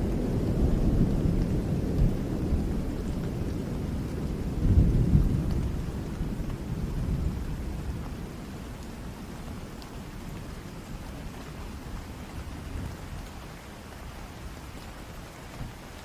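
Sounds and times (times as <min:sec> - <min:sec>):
rolling thunder: 0:00.0 - 0:08.2
steady rain: 0:00.0 - 0:16.0.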